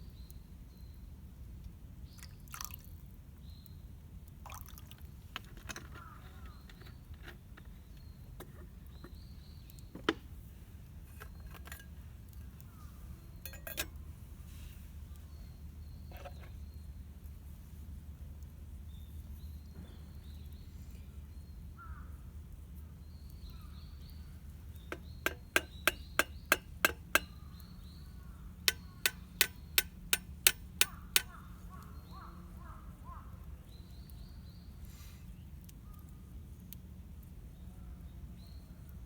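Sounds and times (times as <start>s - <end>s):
small birds chirping: 0.0s - 1.1s, 3.4s - 3.9s, 5.8s - 39.0s
sharp knocks: 24.9s - 27.3s, 28.7s - 31.4s.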